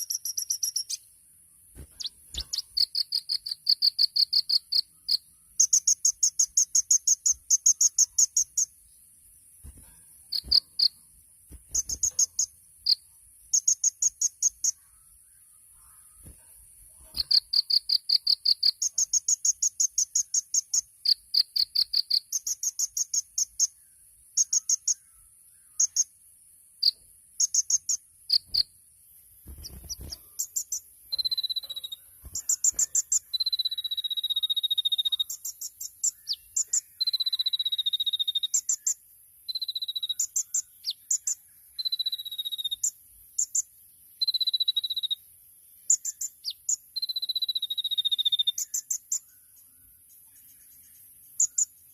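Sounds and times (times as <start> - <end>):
bird singing trills and whistles: 0.0 - 1.1, 1.8 - 8.7, 11.7 - 14.8, 17.1 - 26.1, 29.5 - 45.2, 45.8 - 51.9.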